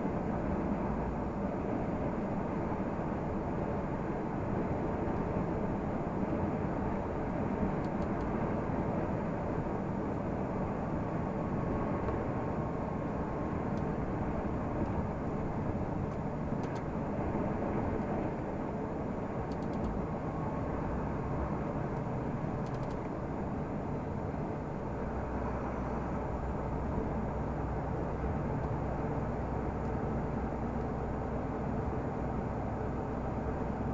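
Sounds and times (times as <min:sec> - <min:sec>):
faint ticks: 0:22.0 - 0:23.1.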